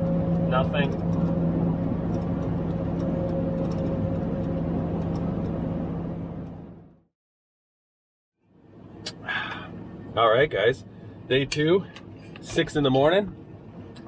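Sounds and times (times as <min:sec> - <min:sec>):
engine drone and road noise: 0:00.0 - 0:07.1, 0:08.4 - 0:14.0.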